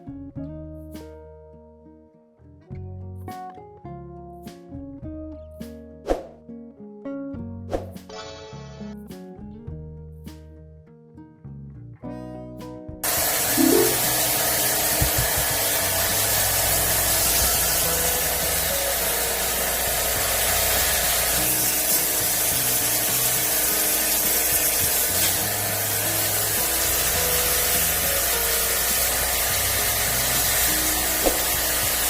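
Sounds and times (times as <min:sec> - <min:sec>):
pressure washer spraying water: 0:13.0 - 0:32.0.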